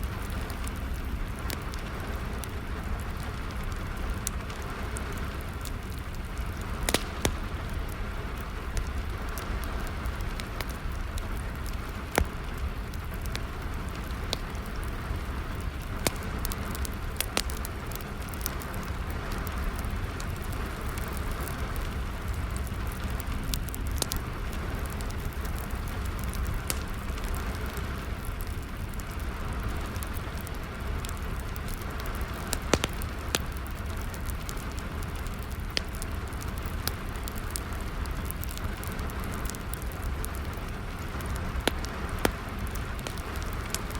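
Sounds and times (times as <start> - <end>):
steady rainfall: 0.0 - 43.9
wood fire crackling: 0.0 - 43.9.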